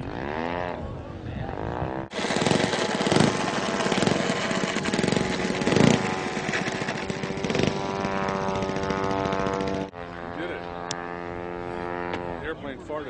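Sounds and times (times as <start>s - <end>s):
model airplane engine droning: 2.1s - 13.0s.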